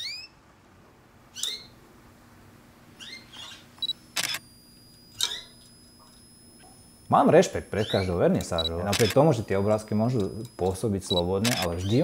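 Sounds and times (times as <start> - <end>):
cage birds chirping: 0.0 - 0.4, 1.3 - 1.8, 2.9 - 3.9, 7.7 - 10.3, 11.1 - 12.0.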